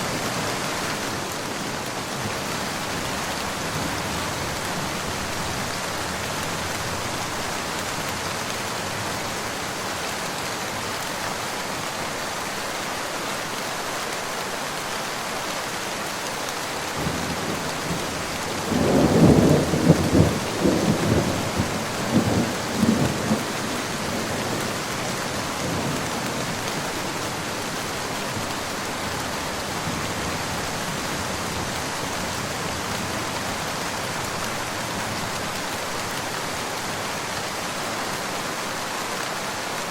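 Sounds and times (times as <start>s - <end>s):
steady rain falling: 0.0s - 39.9s
thunder rumbling: 17.0s - 24.9s.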